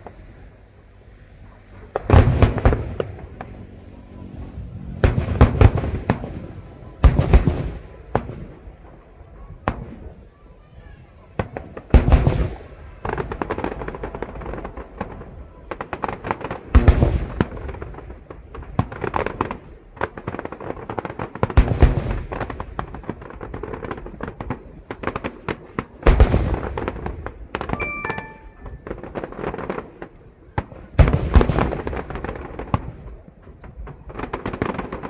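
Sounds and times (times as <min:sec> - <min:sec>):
fireworks crackling and popping: 0:00.0 - 0:35.0
firework shells booming: 0:07.0 - 0:08.6, 0:15.8 - 0:18.0, 0:24.3 - 0:27.8.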